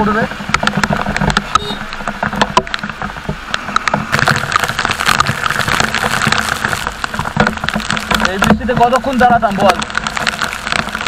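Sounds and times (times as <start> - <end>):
raindrops striking camera: 0.0 - 11.0.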